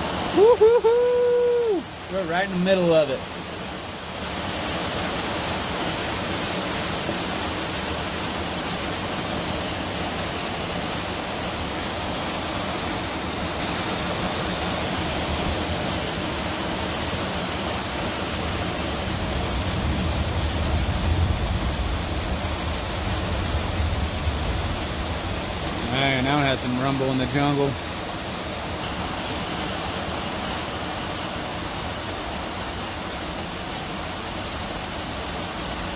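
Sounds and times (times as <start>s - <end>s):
heavy rain on a tin roof: 0.0s - 35.9s
low rumble of thunder: 19.1s - 25.8s.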